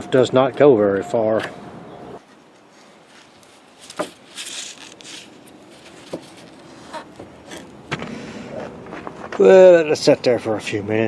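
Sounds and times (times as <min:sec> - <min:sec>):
short rustle: 0:02.2 - 0:07.7.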